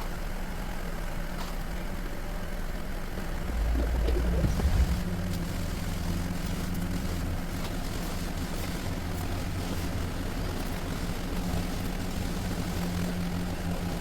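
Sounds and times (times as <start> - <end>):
car engine idling: 2.6 - 7.6.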